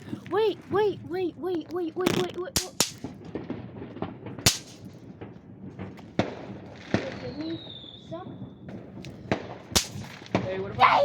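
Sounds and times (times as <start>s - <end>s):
bang snaps cracking: 2.0s - 3.2s, 4.5s - 4.9s, 9.8s - 10.4s.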